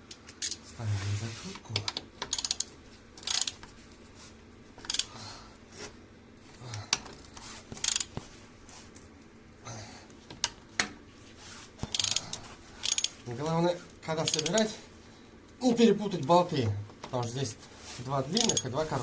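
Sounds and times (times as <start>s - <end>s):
ratchet wrench clicking: 2.2s - 3.6s, 4.8s - 5.1s, 7.8s - 8.1s, 11.8s - 13.2s, 14.2s - 14.7s, 18.4s - 18.8s
metal tools clinking: 14.2s - 14.7s, 18.3s - 19.0s.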